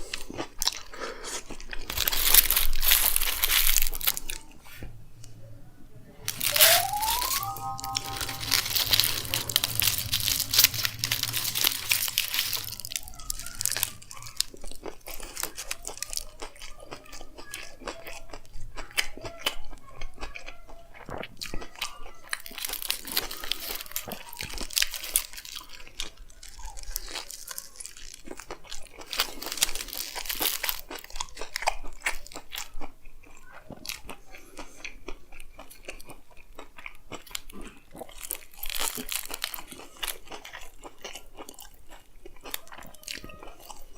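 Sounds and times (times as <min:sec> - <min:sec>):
biting and chewing food: 0:00.0 - 0:04.4, 0:08.2 - 0:43.9.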